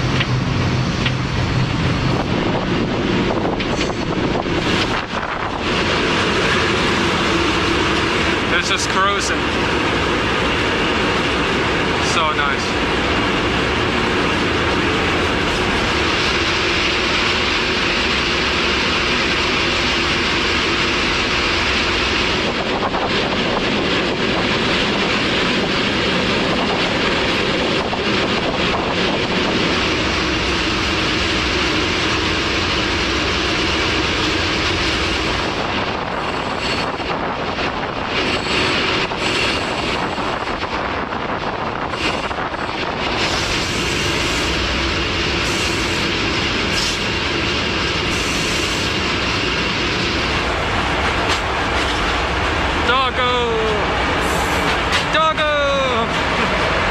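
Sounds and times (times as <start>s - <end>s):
wind rushing past: 0.0s - 8.7s
train wheels on rails: 0.0s - 56.9s.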